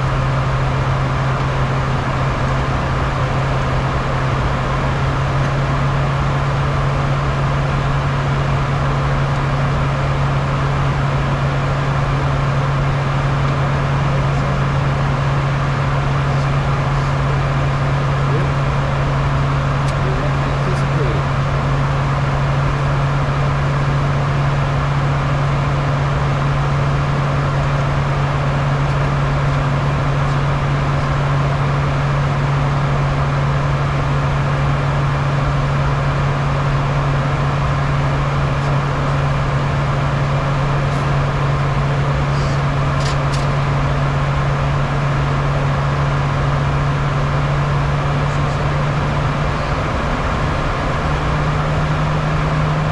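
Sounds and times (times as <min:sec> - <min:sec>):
constant low hum: 0:00.0 - 0:52.9
jet airflow and engine noise: 0:00.0 - 0:52.9.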